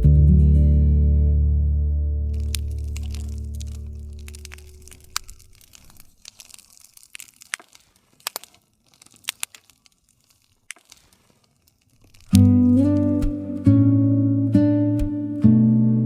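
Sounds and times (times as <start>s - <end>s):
low guitar chord: 0.0s - 2.4s, 12.4s - 16.0s
wood fire crackling: 2.2s - 13.6s
logs popping and snapping: 2.3s - 13.8s.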